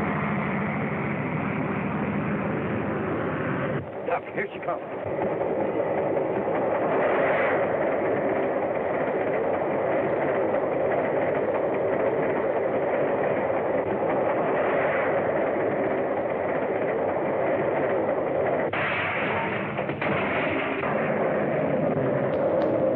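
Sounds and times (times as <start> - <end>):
steam train rumbling: 0.0 - 22.9.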